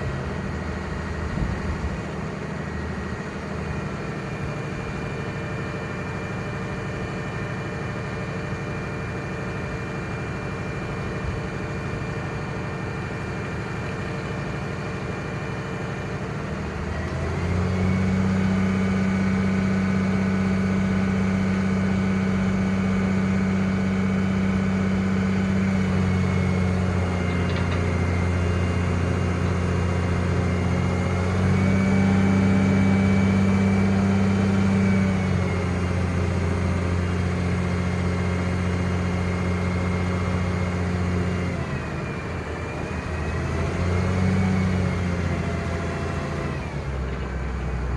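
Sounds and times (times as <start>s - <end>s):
diesel engine idling and revving: 0.0s - 47.9s.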